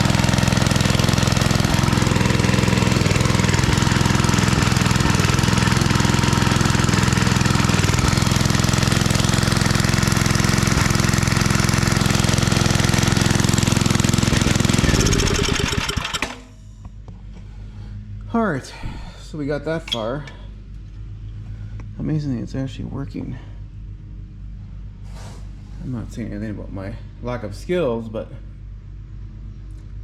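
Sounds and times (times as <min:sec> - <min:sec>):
engine winding down: 0:00.0 - 0:16.6
small engine running: 0:00.0 - 0:16.6.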